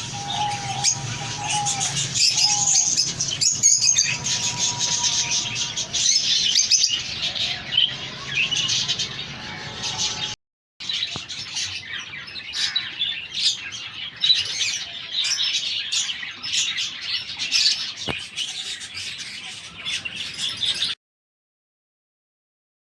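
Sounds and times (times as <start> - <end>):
small pet birds chirping: 0.0 - 10.4.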